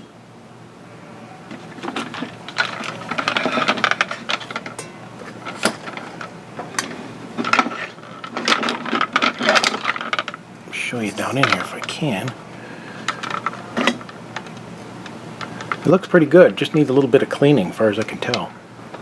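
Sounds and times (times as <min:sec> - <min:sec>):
plastic parts scraping and rattling: 0:01.5 - 0:12.4, 0:13.0 - 0:14.6.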